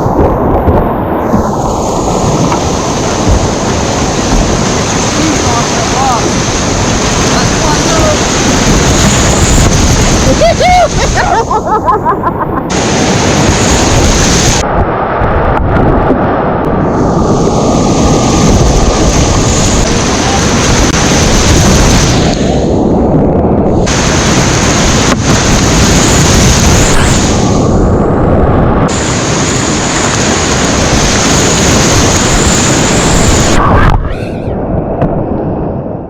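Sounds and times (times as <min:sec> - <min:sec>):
whitewater rapids rushing: 0:00.0 - 0:14.6, 0:17.0 - 0:22.7, 0:23.8 - 0:27.7, 0:28.9 - 0:34.2.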